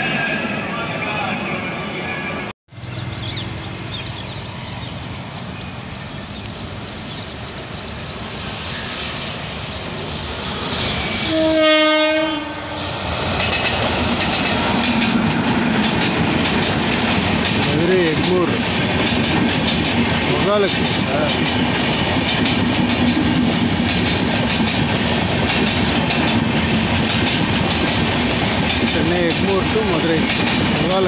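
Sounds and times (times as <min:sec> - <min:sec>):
train passing at speed: 0:00.0 - 0:31.0
train horn blast: 0:11.1 - 0:13.1
wheels clickety-clack on rail joints: 0:13.0 - 0:31.0.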